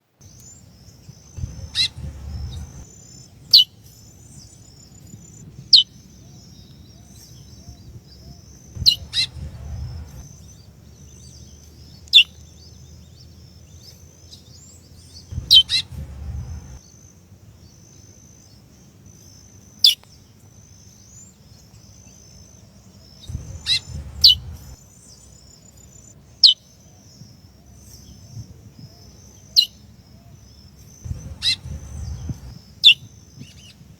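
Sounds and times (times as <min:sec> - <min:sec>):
faint high twittering: 0:00.2 - 0:03.3, 0:08.6 - 0:10.7, 0:15.3 - 0:16.8, 0:23.2 - 0:26.1, 0:31.0 - 0:32.8
low rumbling noise: 0:01.4 - 0:02.9, 0:08.8 - 0:10.5, 0:15.3 - 0:16.8, 0:23.3 - 0:24.8, 0:31.1 - 0:32.6
finch sharp call notes: 0:31.1 - 0:32.6.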